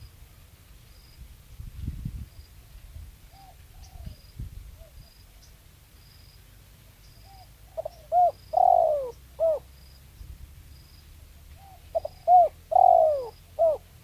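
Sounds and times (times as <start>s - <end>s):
dove cooing: 7.3s - 9.7s, 11.4s - 14.0s.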